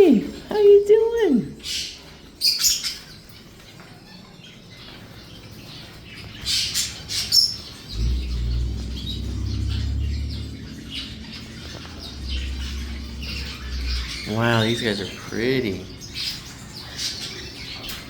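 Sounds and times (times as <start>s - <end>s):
parrots squawking: 0.0s - 18.0s
steady low rumble: 7.7s - 18.0s.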